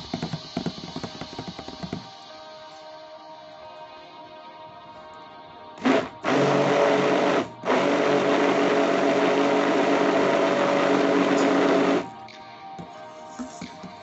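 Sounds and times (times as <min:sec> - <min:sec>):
blender motor whirring: 0:05.8 - 0:12.1.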